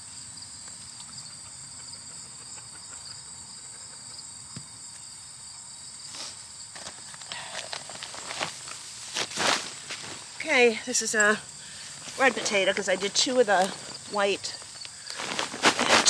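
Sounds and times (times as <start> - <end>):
high-pitched insect chorus: 0.0 - 16.0
rustling and scuffing of soil bag: 6.0 - 16.0.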